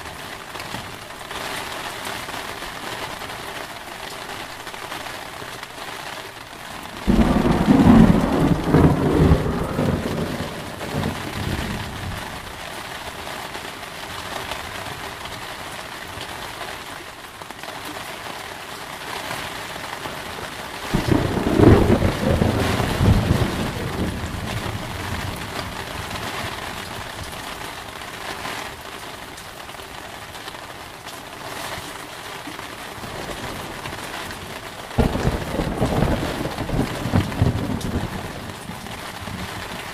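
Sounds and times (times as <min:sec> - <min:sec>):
heavy rain: 0:00.0 - 0:39.9
thunder claps rumbling: 0:06.9 - 0:12.4, 0:20.9 - 0:27.0, 0:33.0 - 0:39.9.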